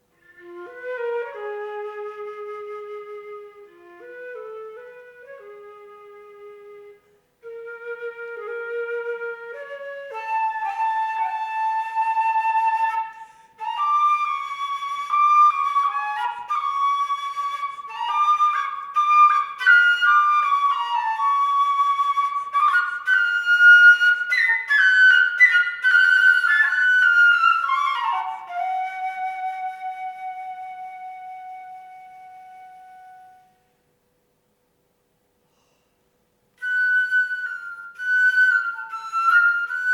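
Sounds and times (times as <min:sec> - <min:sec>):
solo flute playing: 0:00.0 - 0:33.8, 0:36.6 - 0:39.9.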